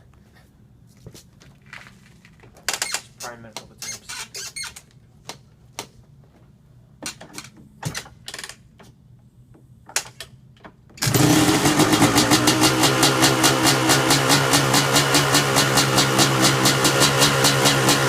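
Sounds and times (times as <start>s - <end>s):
dirt bike engine running: 11.0s - 18.0s.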